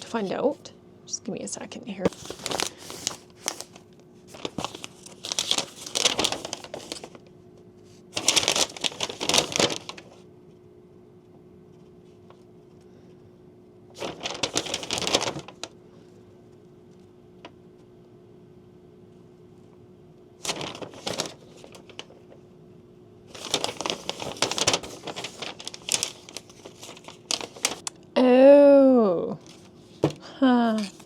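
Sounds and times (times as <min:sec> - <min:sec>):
faint steady hum: 0:00.0 - 0:31.0
packaging crinkling: 0:02.1 - 0:07.3, 0:08.2 - 0:10.2, 0:14.0 - 0:15.8, 0:20.4 - 0:22.4, 0:23.3 - 0:27.9, 0:30.7 - 0:31.0.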